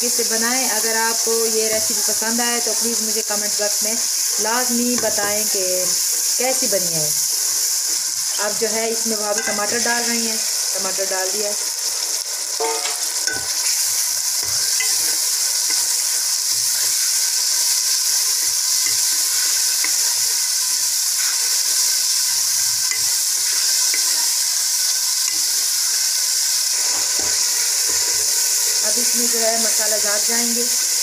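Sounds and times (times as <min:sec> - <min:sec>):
tomatoes sizzling in hot fat: 0:00.0 - 0:31.0
ladle stirring and tapping pot: 0:09.4 - 0:09.8, 0:12.6 - 0:13.8.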